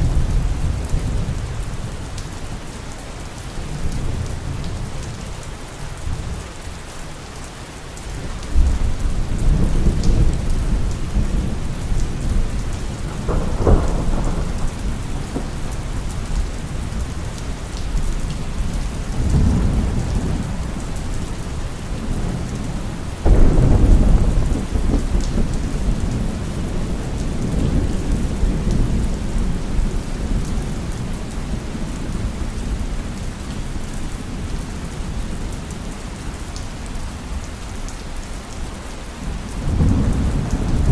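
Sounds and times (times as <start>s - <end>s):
rolling thunder: 0.0s - 2.1s, 8.5s - 32.8s, 39.6s - 40.9s
heavy steady rain: 0.0s - 40.9s.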